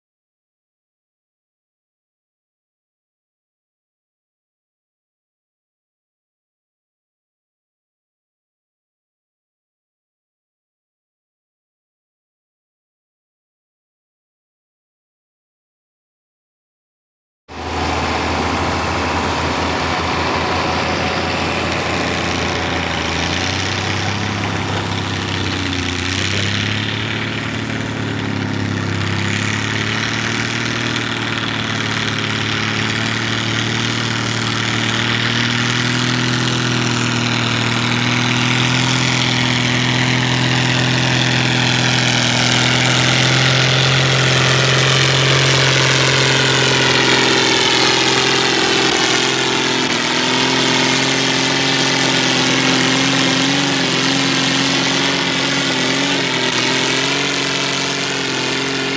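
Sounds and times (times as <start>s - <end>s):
tractor engine running: 17.5s - 58.9s.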